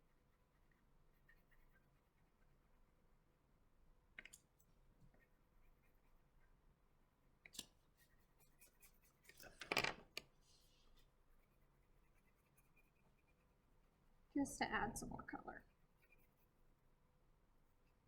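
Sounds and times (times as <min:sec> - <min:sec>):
crayon scratching on paper: 0:00.1 - 0:02.3, 0:08.0 - 0:09.4, 0:11.0 - 0:14.0, 0:15.6 - 0:16.8.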